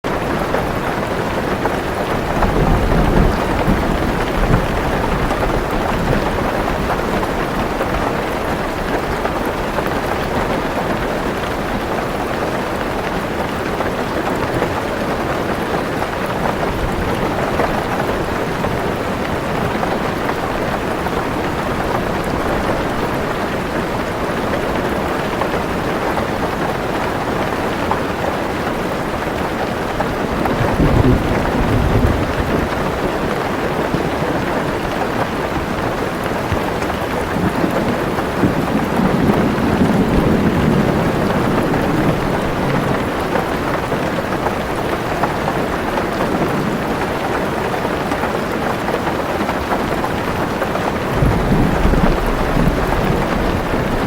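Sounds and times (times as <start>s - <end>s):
heavy rain on car roof: 0.0s - 54.0s
low thunder rumbling: 0.1s - 9.9s, 29.8s - 35.0s, 35.7s - 44.4s, 49.9s - 54.0s.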